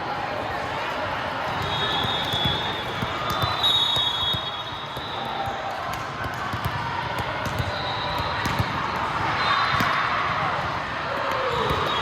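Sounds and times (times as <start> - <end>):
basketball bouncing on a court: 1.5 - 9.1.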